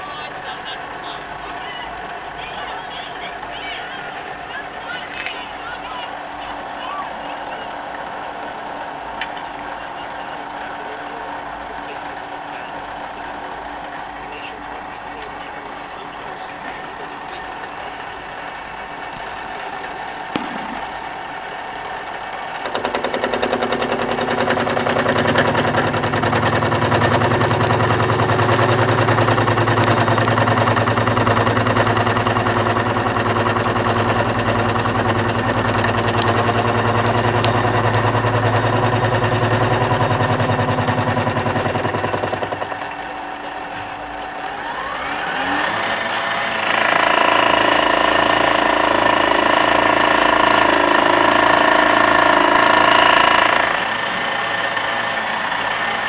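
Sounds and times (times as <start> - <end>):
rising machine whine: 0.0 - 56.0
milling machine cutting: 22.4 - 54.5.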